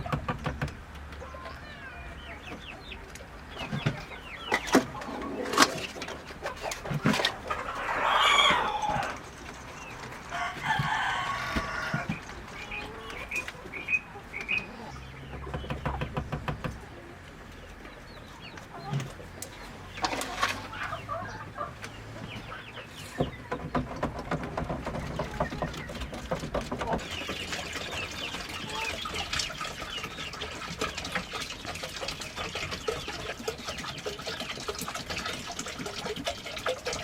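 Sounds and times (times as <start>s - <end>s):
chickens clucking: 0.0s - 37.0s
rooster crowing: 7.7s - 9.2s, 10.3s - 12.1s.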